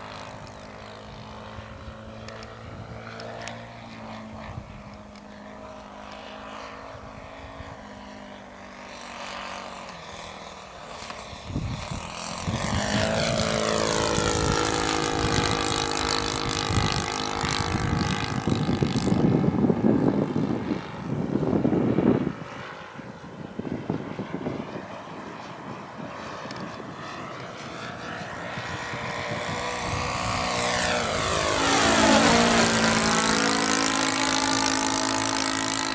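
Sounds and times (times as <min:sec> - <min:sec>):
propeller airplane engine passing: 0:00.0 - 0:35.9.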